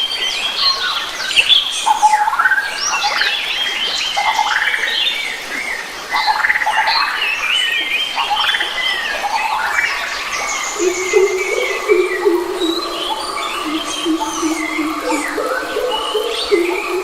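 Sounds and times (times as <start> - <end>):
forest birds chirping and singing: 0.0 - 17.0
low repeated bird call: 8.6 - 17.0.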